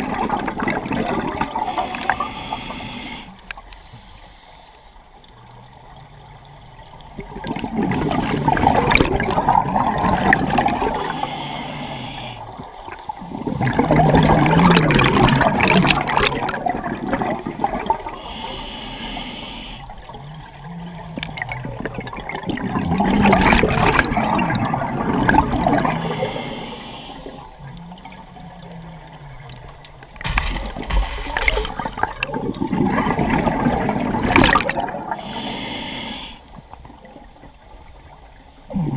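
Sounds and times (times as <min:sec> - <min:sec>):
diver exhaling bubbles underwater: 0:00.0 - 0:02.8, 0:07.1 - 0:11.6, 0:13.4 - 0:18.2, 0:20.1 - 0:26.5, 0:30.2 - 0:35.8, 0:38.7 - 0:38.9.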